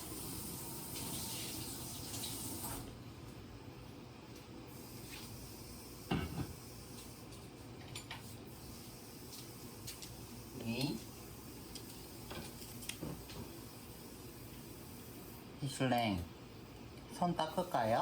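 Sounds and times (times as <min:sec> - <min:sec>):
water running from a tap: 0:00.0 - 0:02.8.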